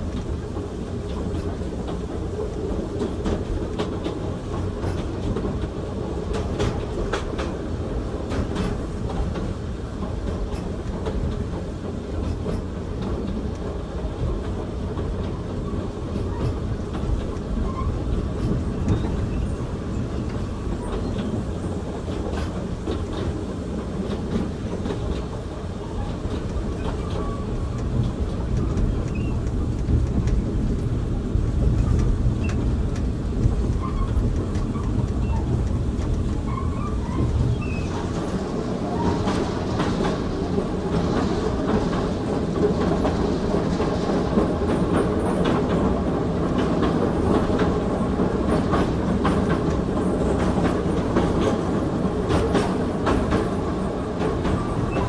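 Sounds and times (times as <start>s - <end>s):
clicks over rail joints: 0.0s - 15.5s, 20.0s - 38.4s, 39.0s - 55.0s
train wheels rumbling on rail: 0.0s - 55.0s
faint squeaks: 36.4s - 38.1s.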